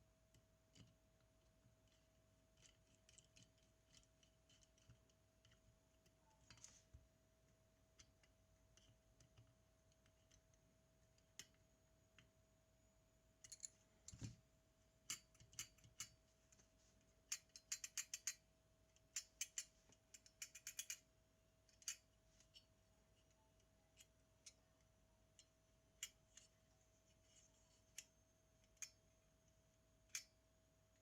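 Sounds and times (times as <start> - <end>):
faint steady hum: 0.0 - 31.0
small tools clicking on metal parts: 2.6 - 5.6, 13.4 - 13.8, 15.0 - 16.2, 17.3 - 18.4, 19.0 - 21.1, 21.7 - 22.6.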